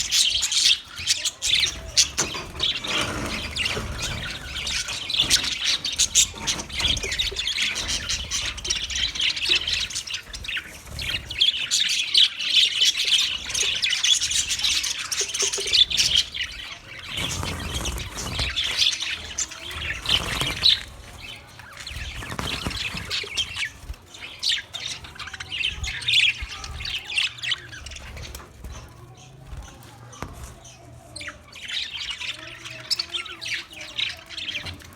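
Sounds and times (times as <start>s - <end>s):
budgerigar warbling chatter: 0.0s - 34.9s.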